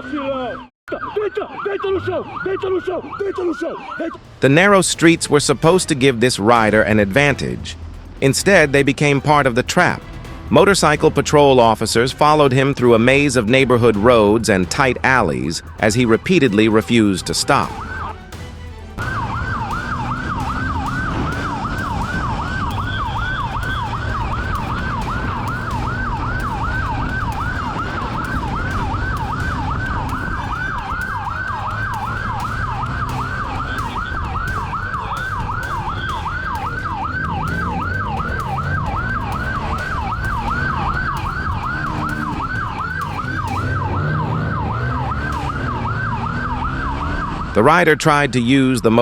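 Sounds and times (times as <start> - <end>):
police siren fast yelp: 0.0 - 5.8, 10.6 - 18.2, 19.0 - 47.8
motorcycle engine running: 19.0 - 47.4.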